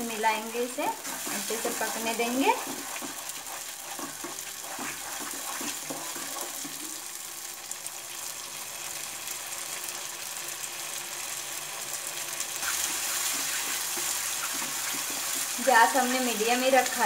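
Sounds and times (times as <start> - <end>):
gravy sizzling in a pan: 0.0 - 17.0
spatula stirring and scraping: 0.1 - 7.1, 12.6 - 17.0.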